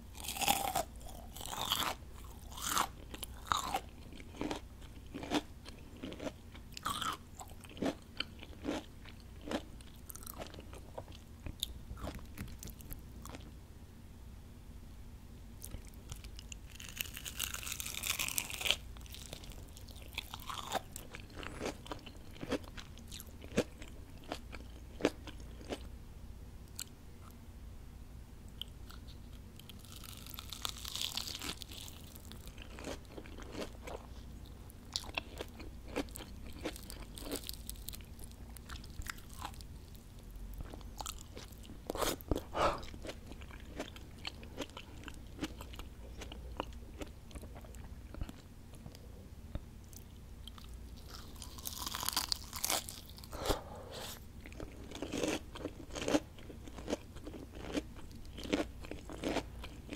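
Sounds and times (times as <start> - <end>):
crunchy chewing of fried food: 0.0 - 13.6, 15.6 - 25.9, 28.5 - 59.9.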